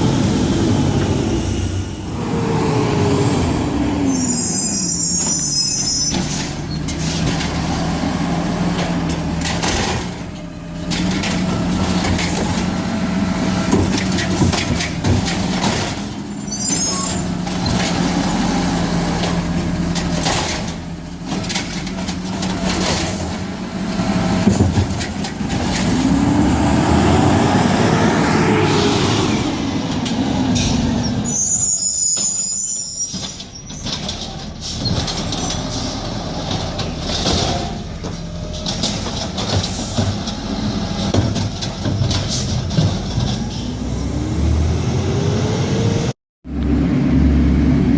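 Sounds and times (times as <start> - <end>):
brake squeal: 3.9 - 7.9, 9.1 - 20.8, 27.8 - 46.1
garbage truck engine running: 6.2 - 31.3, 33.3 - 47.9
clanks and rattles: 8.6 - 26.2, 33.1 - 43.6.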